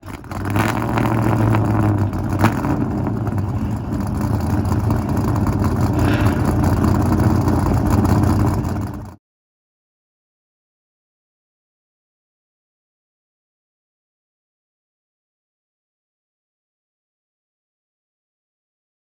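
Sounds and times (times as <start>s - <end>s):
car engine running: 0.0s - 9.2s.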